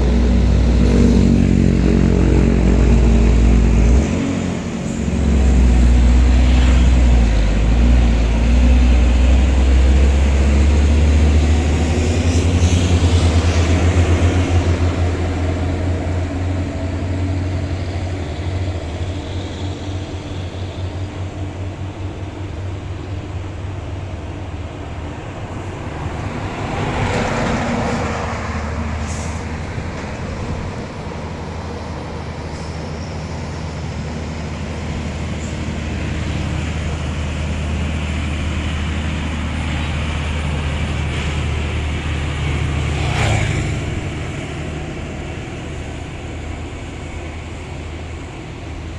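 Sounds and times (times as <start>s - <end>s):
passing vehicle rush: 0.0s - 17.1s, 25.4s - 46.7s
diesel truck engine pulling uphill: 0.0s - 48.9s.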